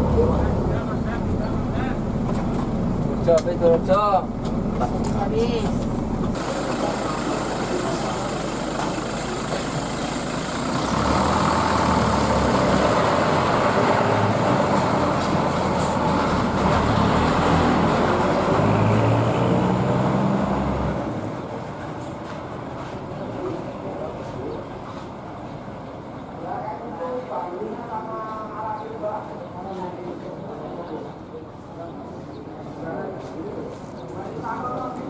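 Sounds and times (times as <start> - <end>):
bus diesel engine under load: 0.0 - 26.6.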